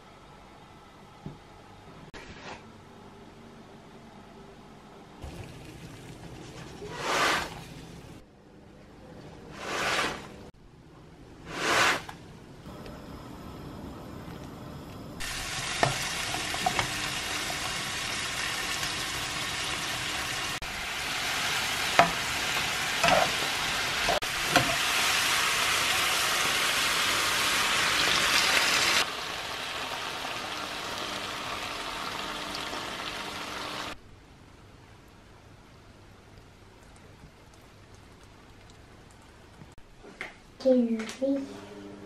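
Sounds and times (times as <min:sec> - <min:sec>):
onions sizzling in a frying pan: 0:15.2 - 0:34.0.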